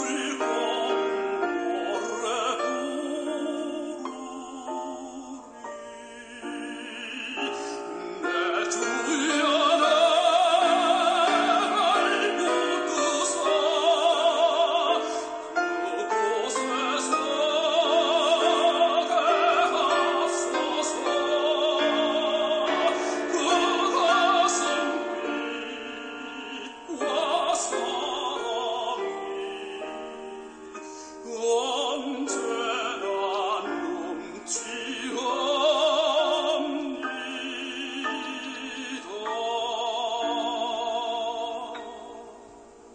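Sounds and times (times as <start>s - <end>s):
operatic singing: 0.0s - 42.9s.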